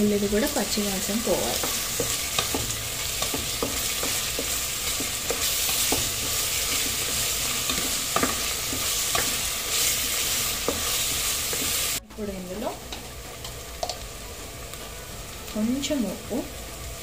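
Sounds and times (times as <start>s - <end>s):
onions sizzling in hot fat: 0.0s - 17.0s
wooden spatula scraping and tapping pan: 1.5s - 11.8s.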